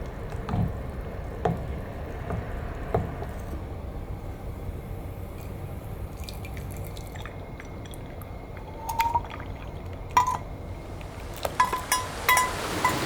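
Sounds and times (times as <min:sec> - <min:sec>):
small ticks and drips: 0:00.0 - 0:03.6, 0:04.3 - 0:13.0
low steady rumble: 0:00.0 - 0:13.0
glass clinks with ring: 0:11.6 - 0:13.0.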